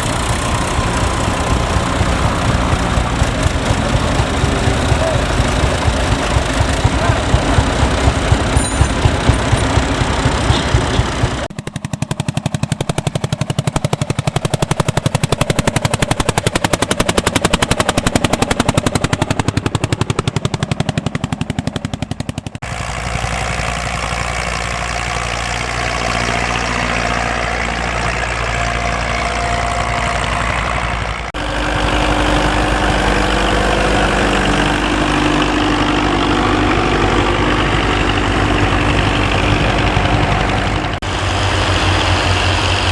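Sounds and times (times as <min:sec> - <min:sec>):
single-cylinder engine pulsing: 0:00.0 - 0:42.9
tractor engines running smoothly: 0:00.0 - 0:42.9.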